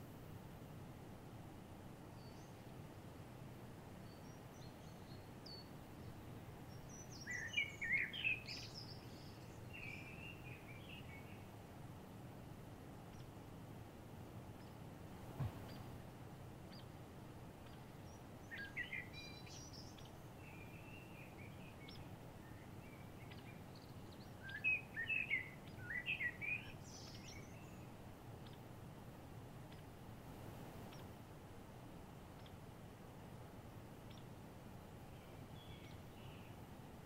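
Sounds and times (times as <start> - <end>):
low background hiss: 0.0 - 37.0
songbirds chirping: 0.0 - 37.0
low thump: 15.2 - 16.0.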